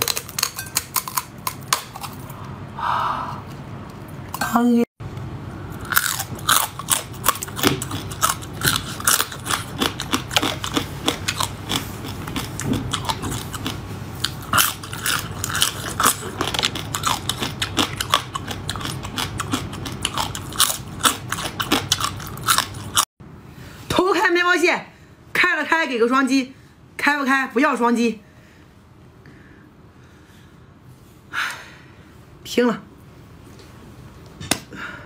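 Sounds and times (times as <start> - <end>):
crunching and chewing crab shells: 0.0 - 2.4, 5.7 - 23.1.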